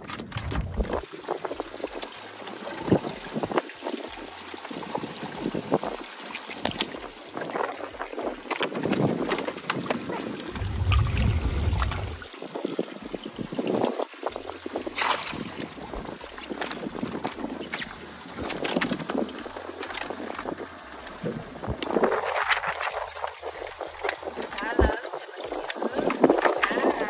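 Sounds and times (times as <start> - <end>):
water trickling: 0.6 - 27.0
wind buffeting microphone: 6.9 - 27.0.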